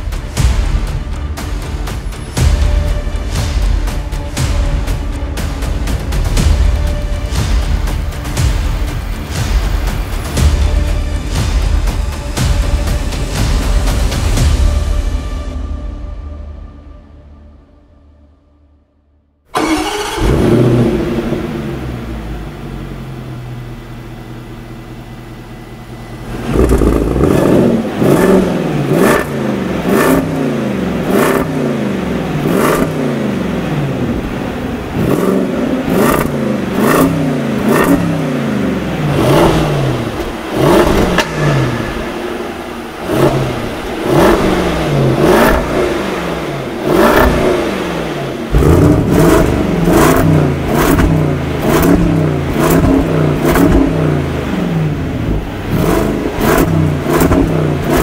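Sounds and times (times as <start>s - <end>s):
engine idling: 19.5s - 58.0s.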